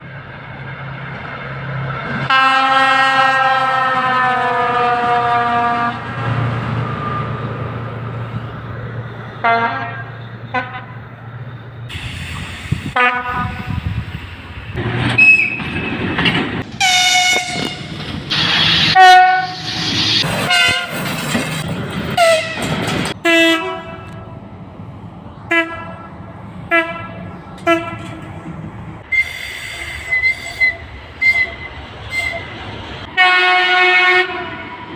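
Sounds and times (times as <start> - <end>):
rumble of passing trains: 0.0 - 34.9
locomotive air horn blasts: 2.3 - 6.1, 9.4 - 11.0, 12.7 - 13.8, 16.8 - 19.8, 20.4 - 20.9, 22.2 - 24.4, 25.5 - 26.1, 26.7 - 28.3, 29.1 - 32.5, 33.1 - 34.6
train whistles: 2.3 - 6.1, 9.4 - 11.0, 11.9 - 13.8, 16.8 - 20.9, 29.0 - 34.7.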